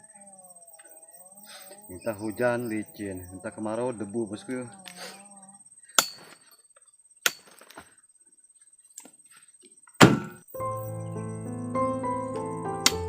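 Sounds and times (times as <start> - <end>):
heavy thuds: 10.0 - 10.5
background music with sustained notes: 10.5 - 13.0.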